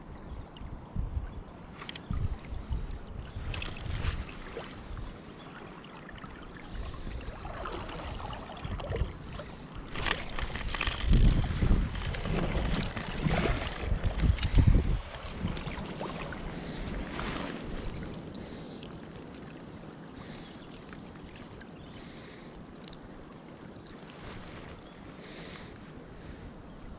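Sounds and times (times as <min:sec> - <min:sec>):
river water running: 0:01.4 - 0:26.9
irregular water splashing: 0:07.2 - 0:19.3.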